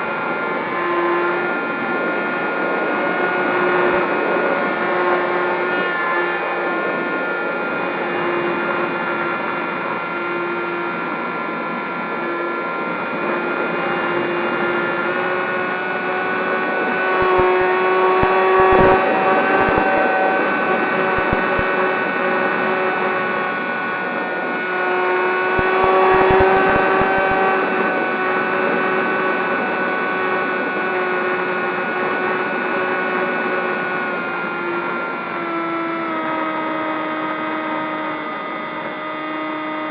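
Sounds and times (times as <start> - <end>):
model plane motor whine: 0.0 - 39.9
wind thumps on microphone: 17.2 - 21.7, 25.6 - 27.4.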